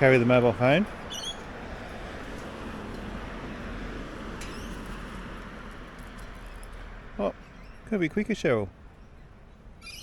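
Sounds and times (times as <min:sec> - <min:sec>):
outdoor background hiss: 0:00.0 - 0:10.0
high bird chirp: 0:01.0 - 0:01.5, 0:04.4 - 0:04.9, 0:07.4 - 0:07.9, 0:09.0 - 0:10.0.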